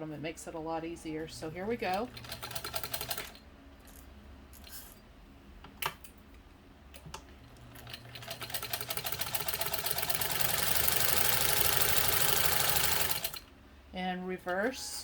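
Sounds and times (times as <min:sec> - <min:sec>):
sewing machine stitching: 0:01.9 - 0:03.4, 0:07.6 - 0:13.4
sewing machine clicks: 0:07.0 - 0:13.4.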